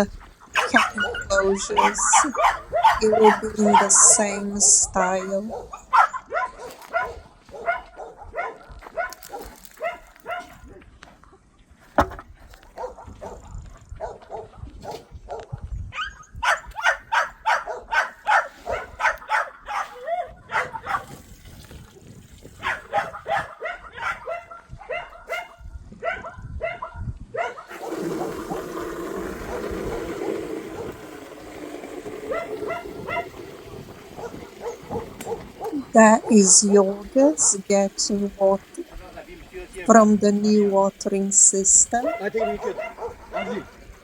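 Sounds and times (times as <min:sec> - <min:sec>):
dogs barking: 0:00.0 - 0:04.4, 0:05.0 - 0:10.8, 0:12.6 - 0:21.1, 0:22.6 - 0:38.8, 0:40.8 - 0:44.0.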